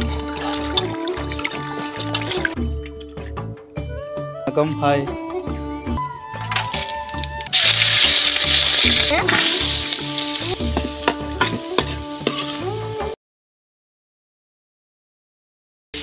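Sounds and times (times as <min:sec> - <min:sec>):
onions sizzling in hot oil: 0:07.0 - 0:13.2.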